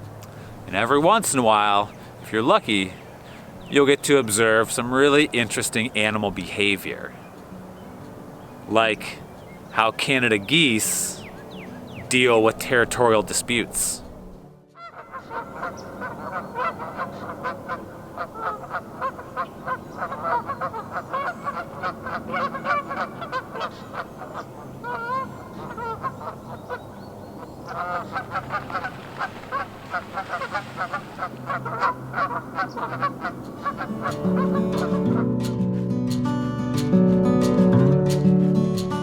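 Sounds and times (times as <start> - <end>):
geese honking: 14.8 - 35.4.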